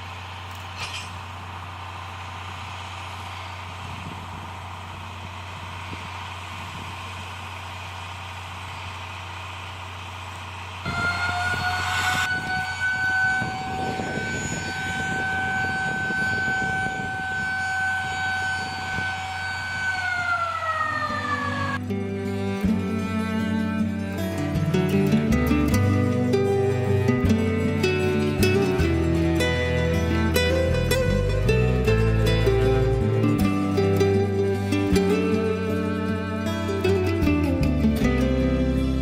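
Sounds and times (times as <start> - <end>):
low hum: 0.0 - 39.0
steam locomotive whistle: 10.8 - 21.8.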